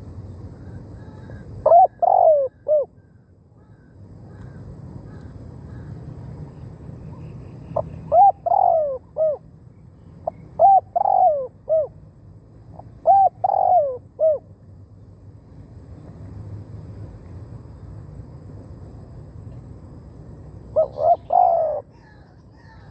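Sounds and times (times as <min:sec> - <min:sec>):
low steady hum: 0:00.0 - 0:22.9
dove cooing: 0:00.6 - 0:03.0, 0:07.7 - 0:09.4, 0:10.2 - 0:12.0, 0:12.8 - 0:14.4, 0:20.7 - 0:22.9.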